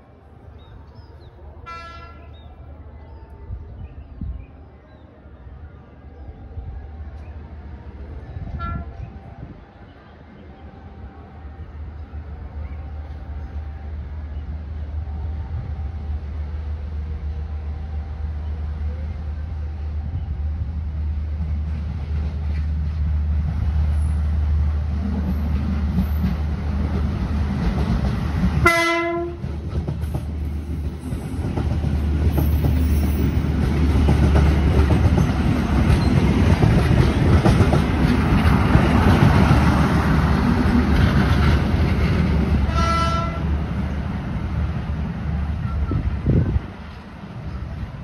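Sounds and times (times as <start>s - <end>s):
train rumbling past: 0.0s - 48.0s
train horn blast: 1.6s - 2.3s, 8.5s - 9.2s, 28.6s - 29.6s, 42.6s - 43.6s.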